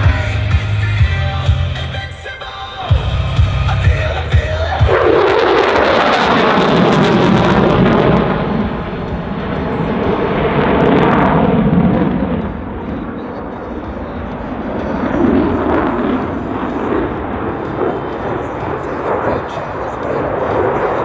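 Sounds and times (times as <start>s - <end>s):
jet engine rushing: 0.0s - 21.0s.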